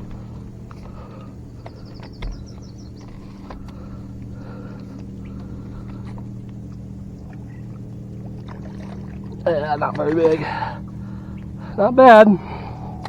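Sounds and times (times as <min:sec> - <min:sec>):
light clicks and knocks: 0:00.0 - 0:08.9
low motor hum: 0:00.0 - 0:13.0.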